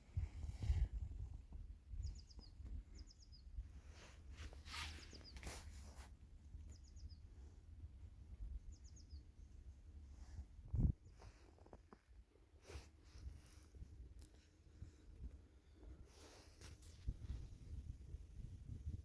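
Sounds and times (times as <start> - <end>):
small bird chirping: 1.9 - 3.6, 4.5 - 6.0, 6.6 - 7.4, 8.6 - 9.4
rustling: 3.8 - 6.1.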